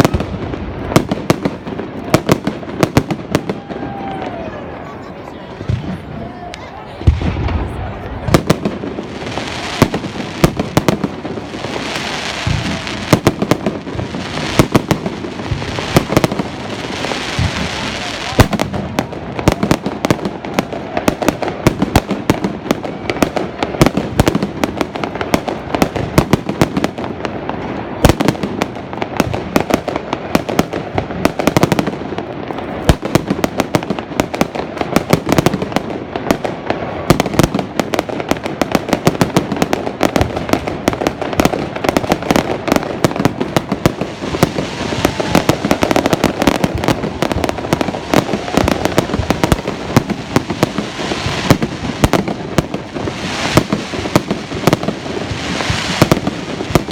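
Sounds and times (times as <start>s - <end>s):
fireworks banging: 0.0s - 56.9s.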